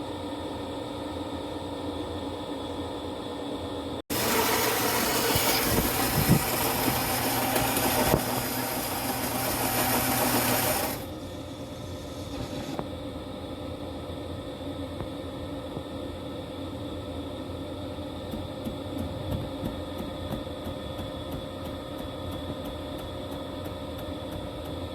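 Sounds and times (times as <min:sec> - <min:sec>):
espresso machine buzzing and hissing: 0:00.0 - 0:24.9.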